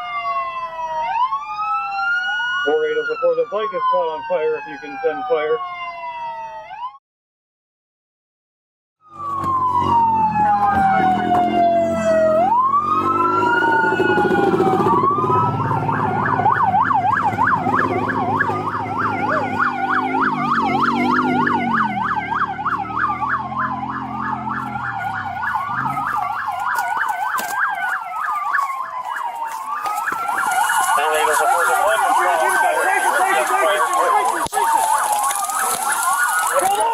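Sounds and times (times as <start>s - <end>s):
police sirens wailing: 0.0s - 7.0s, 9.0s - 36.9s
siren yelp: 0.0s - 7.0s, 9.0s - 36.9s
low vehicle engine rumble: 9.2s - 36.6s.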